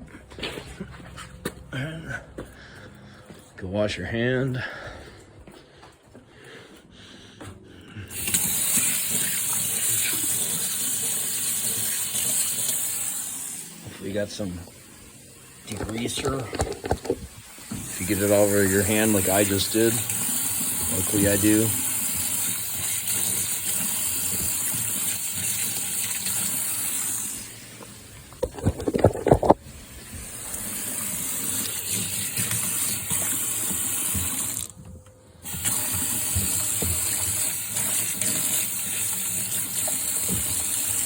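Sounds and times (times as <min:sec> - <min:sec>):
water running from a tap: 0:08.2 - 0:34.7, 0:35.5 - 0:41.0
handling clatter: 0:15.7 - 0:17.4, 0:28.3 - 0:29.6.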